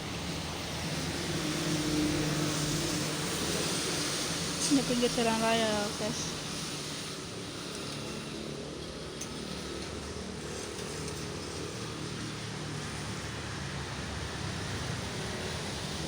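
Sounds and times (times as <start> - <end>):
road traffic drone: 0.0 - 16.0.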